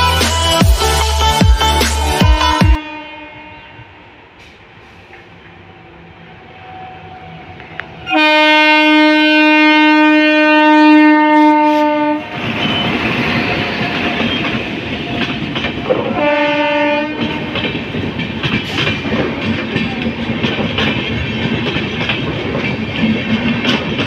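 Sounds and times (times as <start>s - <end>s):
locomotive horn blast: 2.4s - 4.5s, 8.0s - 12.3s, 15.9s - 17.6s
train wheels clattering over joints: 12.4s - 24.0s.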